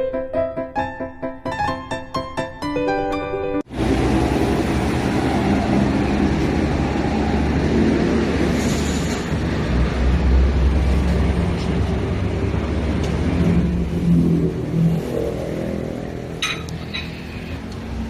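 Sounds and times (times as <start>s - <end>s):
vehicle engine pulling away: 3.7s - 18.0s.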